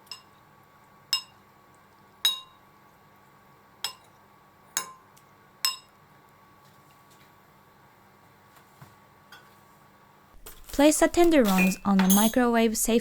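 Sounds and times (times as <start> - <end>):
kitchenware clinking: 10.4 - 12.7.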